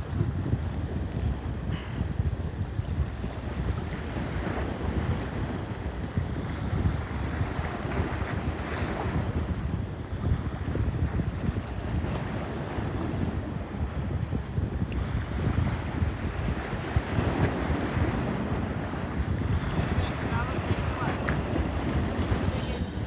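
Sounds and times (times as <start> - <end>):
wind buffeting microphone: 0.0 - 23.0
sea waves washing: 15.7 - 23.0.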